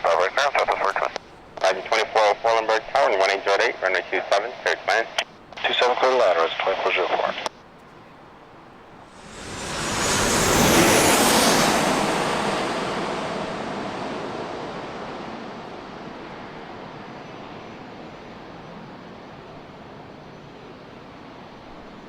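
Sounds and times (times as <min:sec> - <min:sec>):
jet airliner passing: 0:08.8 - 0:19.3
high engine whine: 0:09.0 - 0:17.7.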